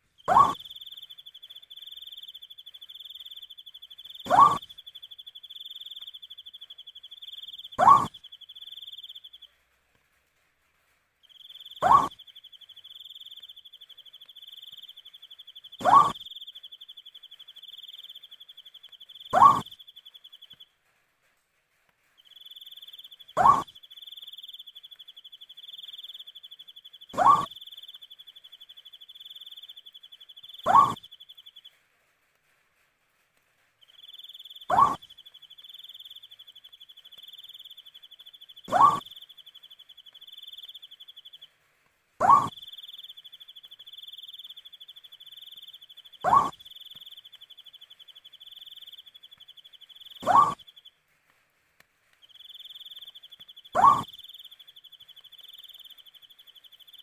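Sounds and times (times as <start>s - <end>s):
owl rising call: 0.3s - 0.8s, 4.3s - 4.7s, 7.8s - 8.2s, 11.8s - 12.2s, 15.8s - 16.3s, 19.3s - 19.8s, 23.4s - 23.7s, 27.1s - 27.6s, 30.6s - 31.1s, 34.7s - 35.1s, 38.7s - 39.2s, 42.2s - 42.7s, 46.2s - 46.7s, 50.2s - 50.6s, 53.8s - 54.3s.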